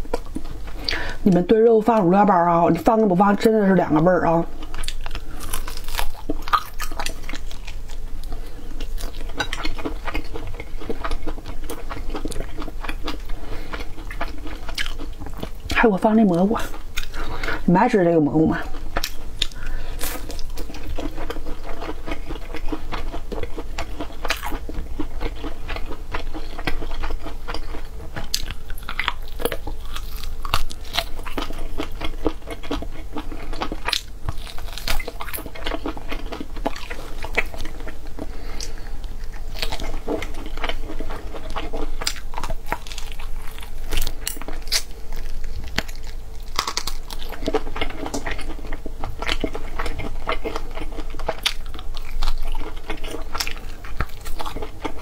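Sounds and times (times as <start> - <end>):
person chewing wetly: 4.5 - 15.8, 16.6 - 17.6, 18.6 - 55.0.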